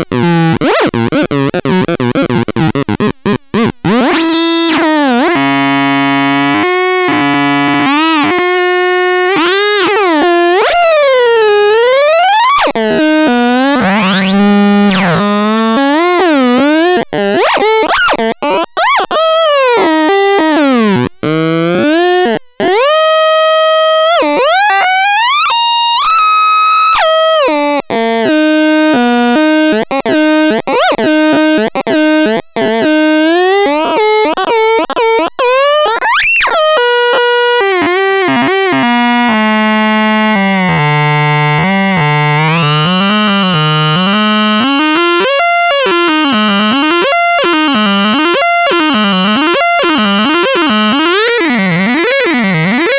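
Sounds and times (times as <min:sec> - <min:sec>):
electronic synthesizer tones: 0:00.0 - 0:18.2, 0:35.5 - 0:52.9.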